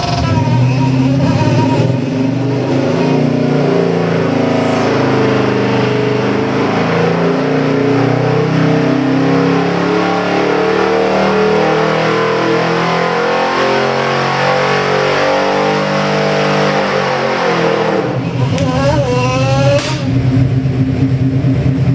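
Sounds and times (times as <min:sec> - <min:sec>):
engine running on dyno: 0:00.0 - 0:21.9.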